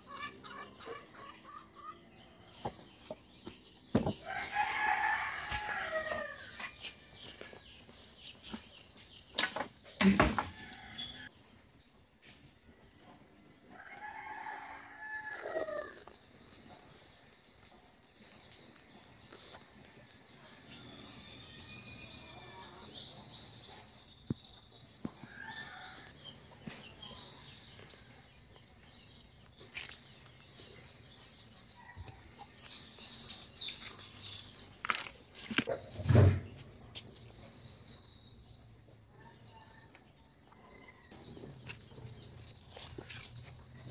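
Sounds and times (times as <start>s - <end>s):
rooster crowing: 4.2s - 6.6s, 13.8s - 16.0s
high-pitched insect drone: 13.8s - 23.6s.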